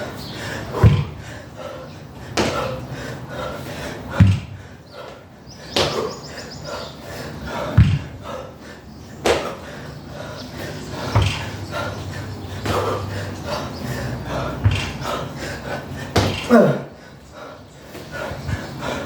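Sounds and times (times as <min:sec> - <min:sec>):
dumbbell heavy thud: 0:00.8 - 0:01.2, 0:04.1 - 0:04.7, 0:07.7 - 0:08.2, 0:14.6 - 0:15.0, 0:16.1 - 0:16.7.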